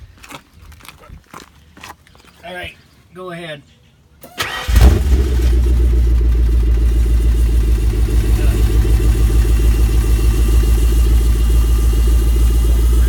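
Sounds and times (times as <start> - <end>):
car engine idling: 4.3 - 13.0.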